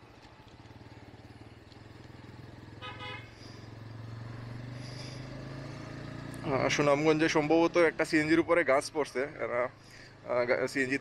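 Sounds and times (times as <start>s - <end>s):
motorcycle engine running: 0.0s - 11.0s
vehicle horn honk: 2.8s - 3.5s.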